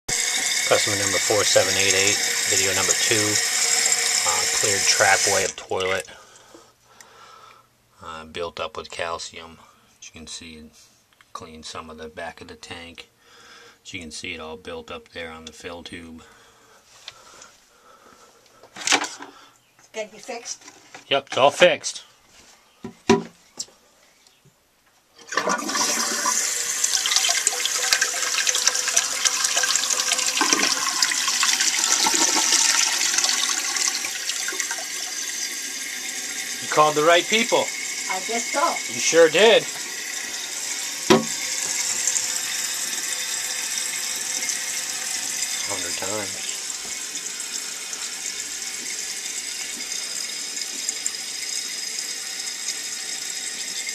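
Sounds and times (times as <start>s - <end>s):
toilet flush water rushing: 0.1s - 6.0s, 25.2s - 53.9s.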